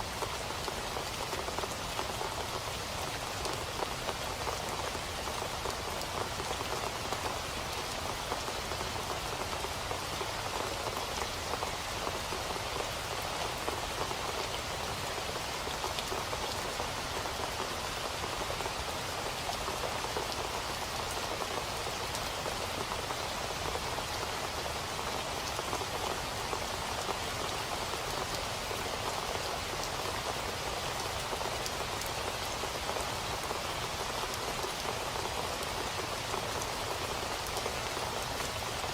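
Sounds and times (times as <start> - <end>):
rain on a hard surface: 0.0 - 38.9.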